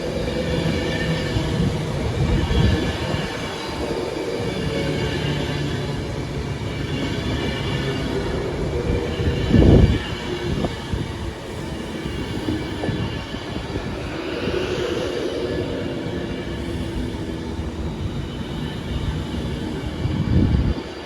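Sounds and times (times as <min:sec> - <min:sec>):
train rumbling past: 0:00.0 - 0:21.0.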